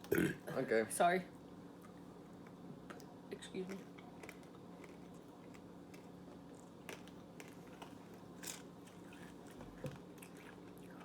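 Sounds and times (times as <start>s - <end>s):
low steady hum: 0.0s - 11.0s
chewing crunchy candy: 2.9s - 11.0s.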